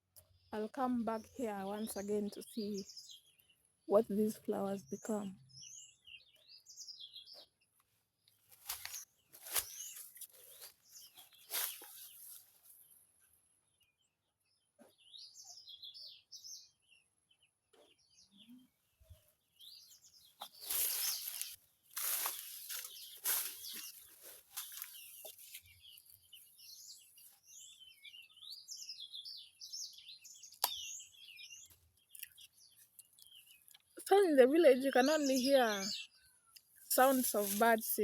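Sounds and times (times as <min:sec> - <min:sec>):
songbirds chirping: 0:00.0 - 0:38.0
rustling noise: 0:08.5 - 0:12.8, 0:20.4 - 0:25.8.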